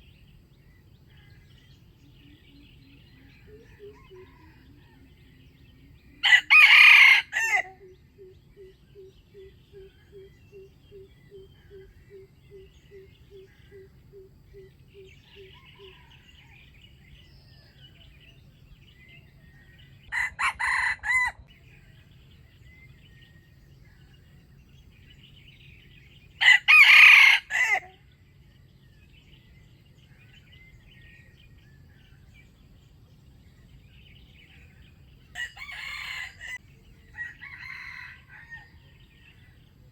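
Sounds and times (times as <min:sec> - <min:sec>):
small birds chirping: 0:00.0 - 0:39.9
rooster crowing: 0:03.3 - 0:05.4, 0:06.2 - 0:07.8, 0:15.2 - 0:16.7, 0:20.1 - 0:21.5, 0:26.4 - 0:28.0, 0:35.3 - 0:39.0.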